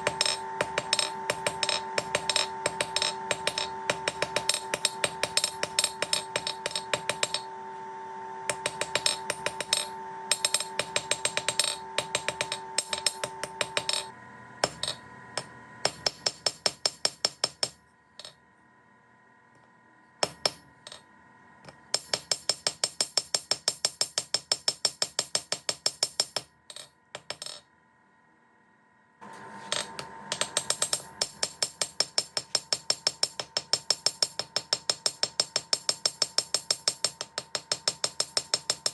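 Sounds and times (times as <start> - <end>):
anvil ringing: 0.0 - 7.5, 8.5 - 18.3
hammer striking steel on anvil: 0.0 - 7.5, 8.5 - 18.4, 21.7 - 27.6, 29.7 - 38.9.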